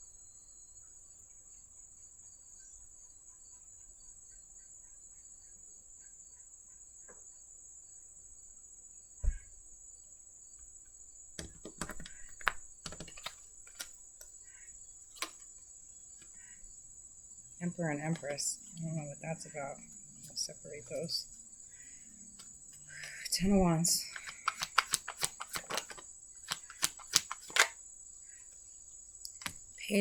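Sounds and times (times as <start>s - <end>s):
faint high-pitched hiss: 0.0s - 30.0s
cards clicking and snapping: 11.4s - 14.4s, 15.1s - 15.5s, 24.0s - 27.8s, 29.3s - 29.7s.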